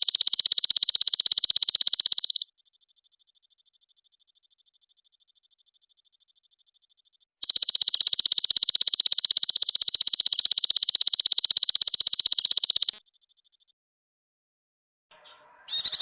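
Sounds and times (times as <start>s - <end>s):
high-pitched pulsing animal trill: 0.0s - 2.5s, 7.4s - 13.0s, 15.6s - 16.0s.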